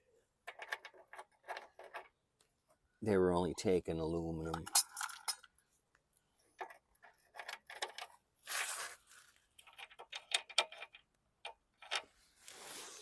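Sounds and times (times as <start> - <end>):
metal tools clinking: 4.4 - 5.5
swishing scrape: 12.4 - 13.0.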